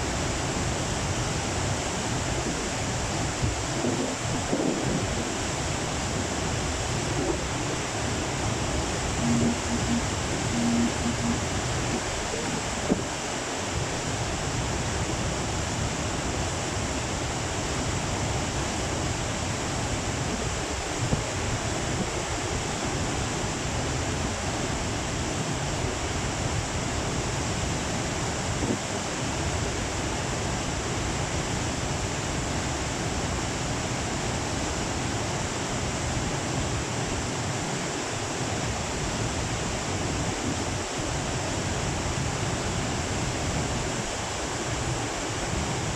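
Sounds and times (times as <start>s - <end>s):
river rushing: 0.0s - 45.9s.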